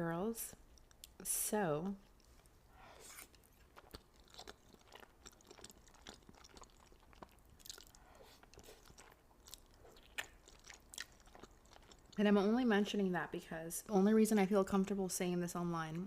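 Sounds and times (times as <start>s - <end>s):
person chewing food: 0.6s - 1.2s, 2.0s - 12.2s.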